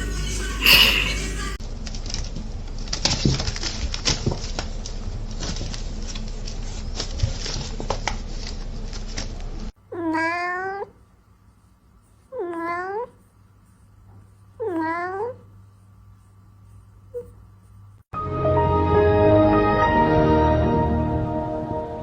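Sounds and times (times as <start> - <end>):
cat meowing: 9.9 - 11.0, 12.3 - 13.2, 14.6 - 15.5.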